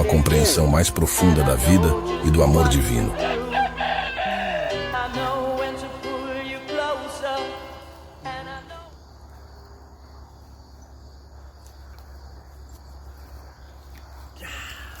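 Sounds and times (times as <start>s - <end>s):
background music note: 0.0s - 8.9s
crickets chirring: 0.0s - 15.0s.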